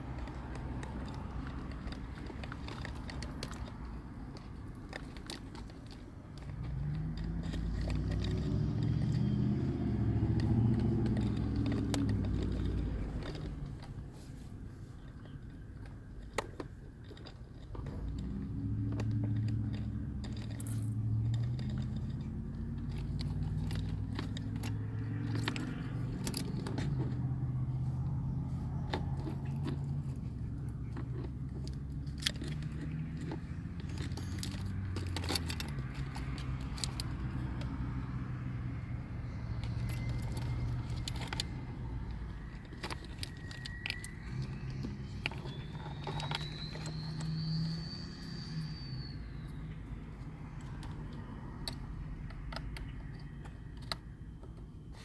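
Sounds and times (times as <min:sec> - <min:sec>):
car engine running: 0:00.0 - 0:15.4, 0:17.7 - 0:55.0
clicks and rattles: 0:00.0 - 0:55.0.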